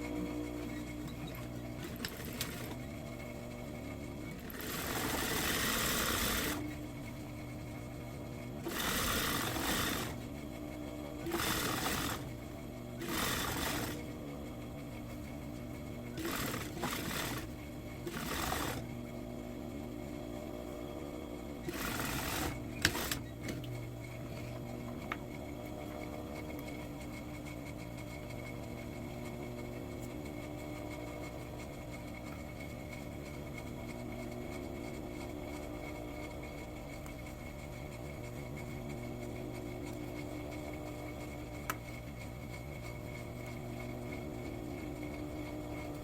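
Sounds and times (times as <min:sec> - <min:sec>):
sewing machine running: 0:00.6 - 0:07.8, 0:08.4 - 0:19.0, 0:21.6 - 0:23.6.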